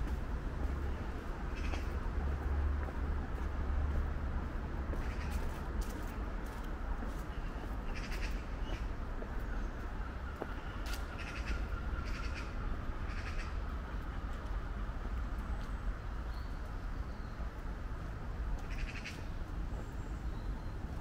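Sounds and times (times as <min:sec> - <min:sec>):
bird cawing: 0:07.4 - 0:08.8, 0:10.7 - 0:13.6, 0:18.6 - 0:19.2.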